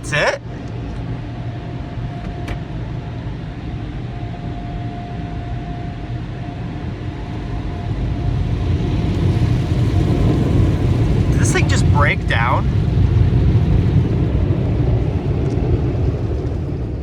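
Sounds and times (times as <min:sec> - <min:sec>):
faint thin whine: 0:04.1 - 0:14.2
low mechanical rumble: 0:06.2 - 0:17.0.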